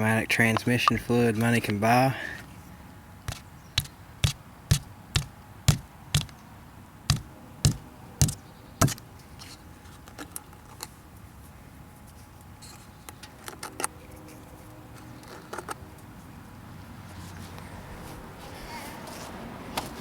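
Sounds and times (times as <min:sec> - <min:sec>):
sharp knocks: 0:07.1 - 0:09.0.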